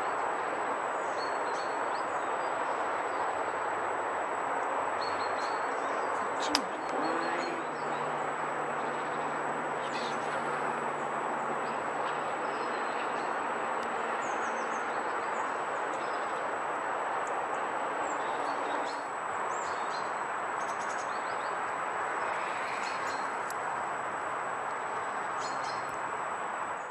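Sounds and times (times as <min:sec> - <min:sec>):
outdoor background hiss: 0:00.0 - 0:26.9
small birds chirping: 0:05.0 - 0:10.8, 0:18.0 - 0:23.7, 0:24.6 - 0:26.0.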